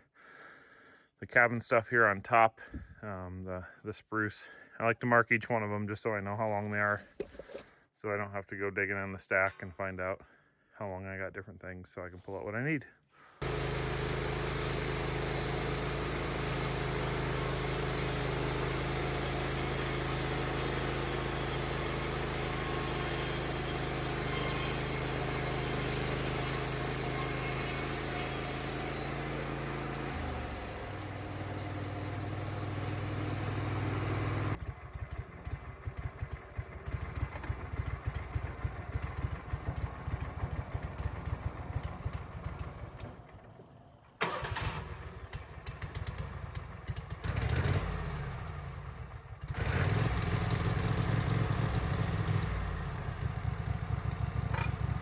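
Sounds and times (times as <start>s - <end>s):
sawmill engine running: 13.4s - 46.2s, 47.2s - 55.0s.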